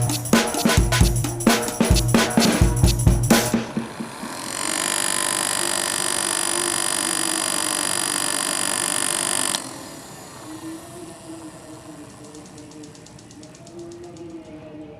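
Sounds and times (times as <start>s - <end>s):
faint hum: 2.4s - 14.9s
small fan motors whining: 3.3s - 14.6s
light ticking: 4.3s - 14.6s.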